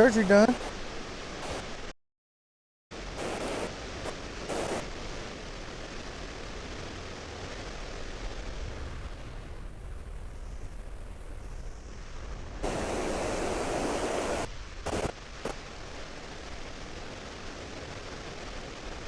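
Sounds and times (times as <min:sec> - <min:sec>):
short noise bursts: 0:01.4 - 0:01.9, 0:03.2 - 0:04.9, 0:12.6 - 0:15.6
loud rush of noise: 0:03.0 - 0:05.8, 0:08.4 - 0:15.2
wind rumbling on microphone: 0:03.0 - 0:19.0.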